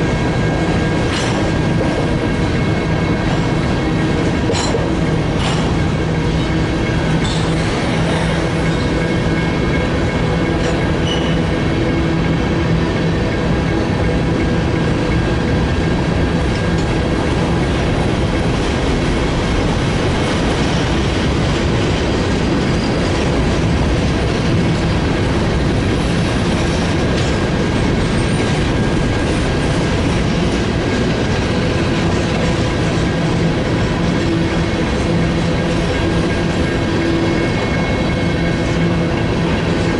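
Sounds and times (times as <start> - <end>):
freight train rolling past: 0.0 - 39.9
wheels clacking over rail joints: 0.1 - 12.4
wheel squeal: 11.0 - 11.5, 22.6 - 23.1.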